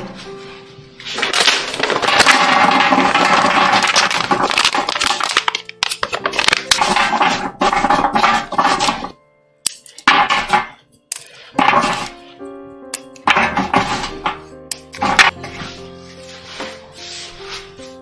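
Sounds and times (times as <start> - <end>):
quiet background music: 0.0 - 18.0
utensils clinking in bowl: 1.2 - 12.2.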